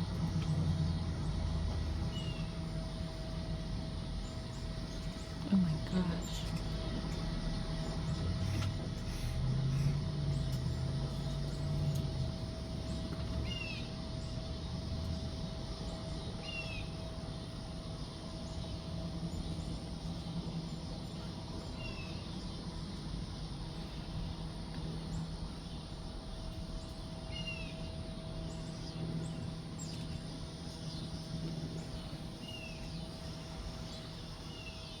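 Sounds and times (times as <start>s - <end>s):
hummingbird wings humming: 0.0s - 35.0s.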